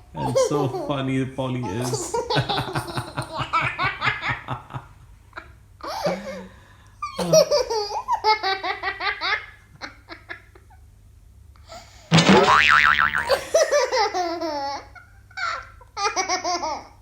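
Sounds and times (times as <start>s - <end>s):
young child giggling: 0.0s - 0.9s, 1.6s - 4.8s, 5.4s - 10.8s, 13.2s - 17.0s.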